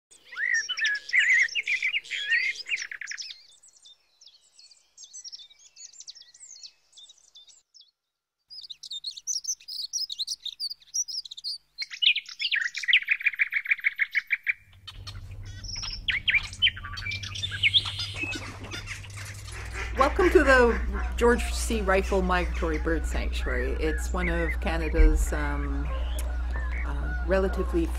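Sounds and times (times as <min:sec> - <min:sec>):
small birds chirping and trilling: 0:00.1 - 0:27.9
low steady hum: 0:14.7 - 0:27.9.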